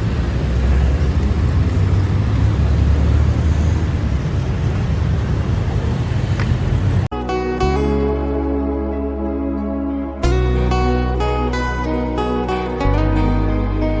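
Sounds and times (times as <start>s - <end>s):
road or wind noise: 0.0s - 7.1s
vehicle rumble: 0.0s - 7.1s.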